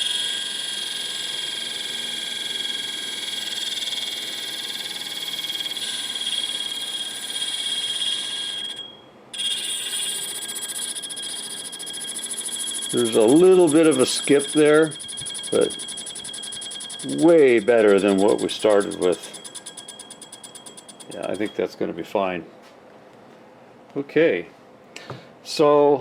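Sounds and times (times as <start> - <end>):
grinder wheel scraping tool: 12.6 - 21.5.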